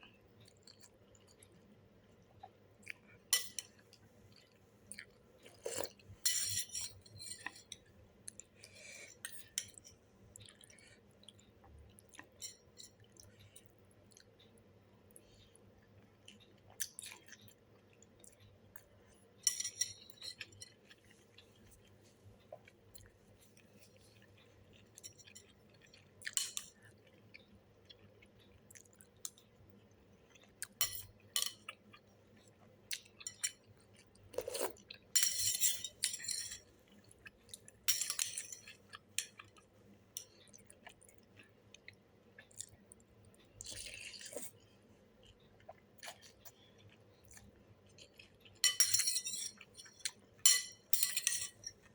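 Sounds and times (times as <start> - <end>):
utensils clinking against bowl: 5.7 - 7.5, 19.4 - 20.8, 30.8 - 31.6, 34.4 - 36.6, 37.9 - 39.3, 48.6 - 51.9
chewing: 38.4 - 48.6.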